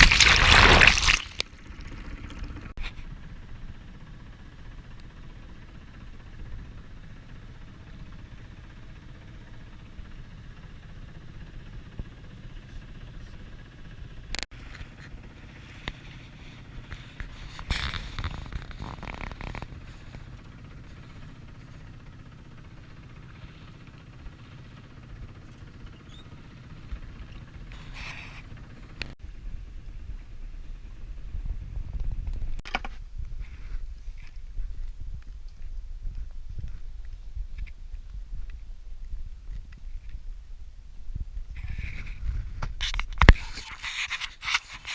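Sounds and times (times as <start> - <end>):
boat engine humming: 0.0 - 31.8.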